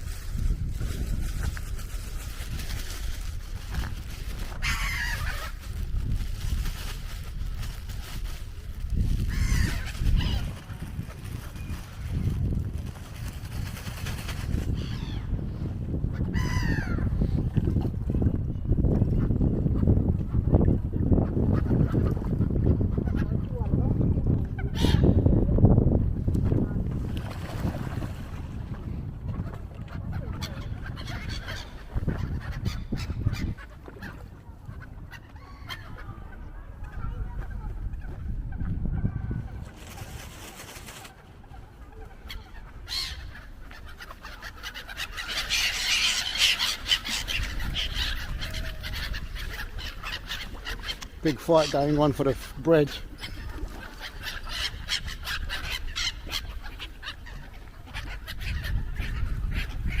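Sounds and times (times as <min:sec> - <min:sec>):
wind rumble on microphone: 0:00.0 - 1:00.0
waterbirds harsh calls: 0:04.3 - 0:05.9, 0:09.2 - 0:12.1, 0:16.1 - 0:17.4, 0:24.4 - 0:25.4, 0:29.3 - 0:39.7, 0:40.9 - 1:00.0
ducks and geese honking and quacking: 0:04.6 - 0:05.6, 0:29.3 - 1:00.0.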